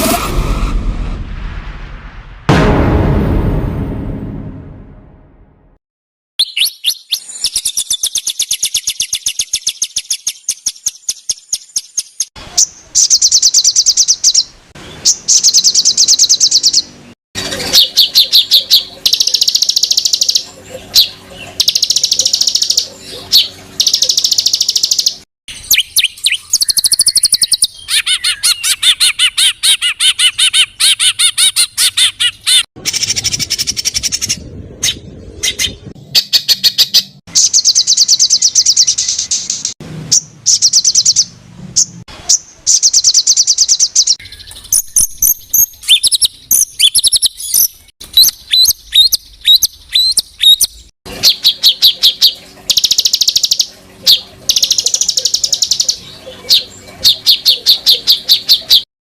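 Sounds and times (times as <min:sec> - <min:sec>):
songbird calls and trills: 0:06.4 - 0:16.9, 0:17.5 - 0:31.6, 0:40.2 - 0:58.8.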